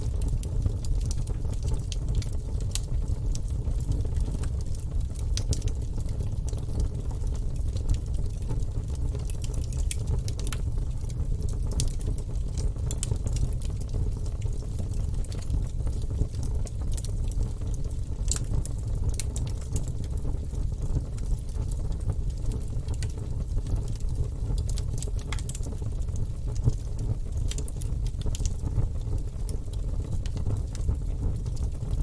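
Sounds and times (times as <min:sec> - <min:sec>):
log fire crackling and popping: 0:00.0 - 0:32.0
low fire rumble: 0:00.0 - 0:32.0.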